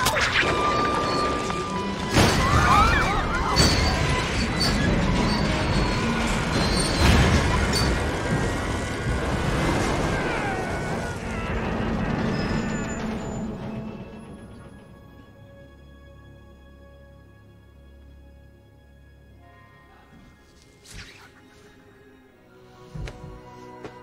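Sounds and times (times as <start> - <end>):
orchestral score: 0.0 - 24.0
heavy metal crashes: 2.0 - 14.6
steel wheels screeching on rails: 2.9 - 15.3.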